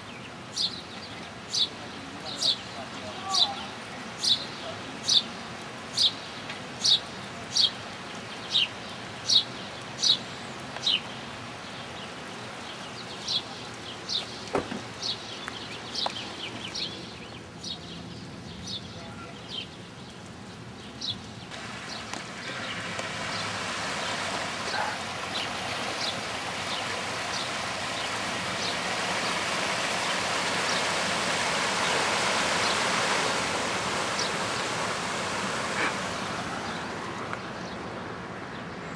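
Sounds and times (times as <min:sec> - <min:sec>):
steady rushing noise: 0:21.6 - 0:37.8.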